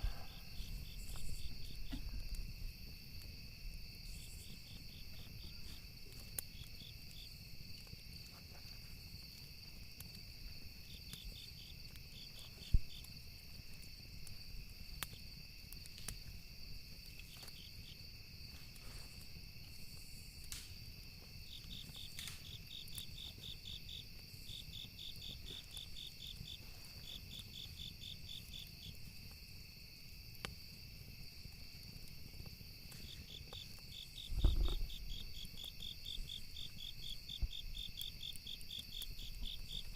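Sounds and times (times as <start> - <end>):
burning wood crackling: 0.0 - 39.9
crickets chirping: 0.0 - 39.9
high insect drone: 13.9 - 39.9
low thump: 34.4 - 34.9.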